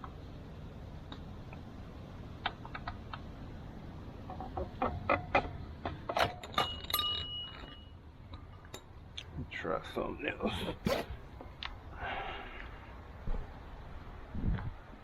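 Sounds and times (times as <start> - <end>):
hand tools clicking and clinking: 4.8 - 8.9.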